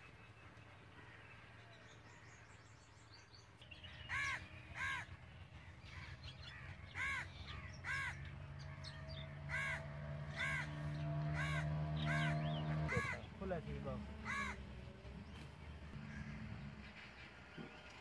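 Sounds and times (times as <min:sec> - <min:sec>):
bird calling: 0:03.8 - 0:14.7.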